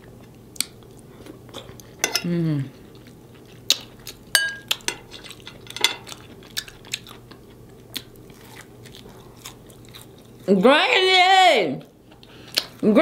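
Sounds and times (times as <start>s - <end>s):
chewing and wet smacks: 0.2s - 2.0s, 2.9s - 10.5s, 11.8s - 12.8s
fork clinking on plate: 4.4s - 6.2s.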